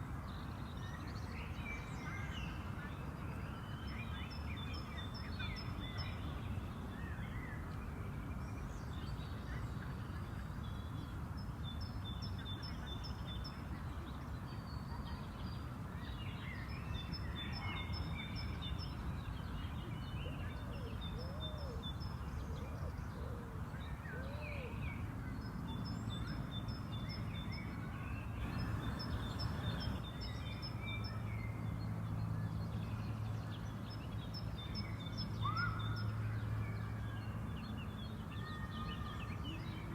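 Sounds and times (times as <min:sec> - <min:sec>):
songbirds singing and calling: 0:00.0 - 0:39.9
low steady hum: 0:28.4 - 0:30.2.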